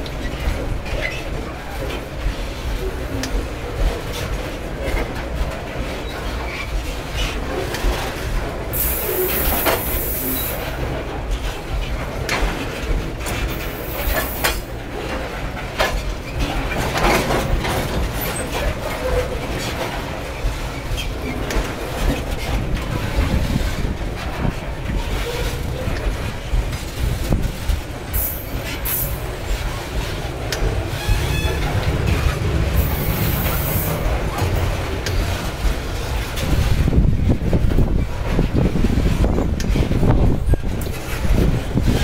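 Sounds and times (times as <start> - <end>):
steel wheels rumbling on rails: 0.0 - 42.0
wheels clacking over rail joints: 0.0 - 42.0.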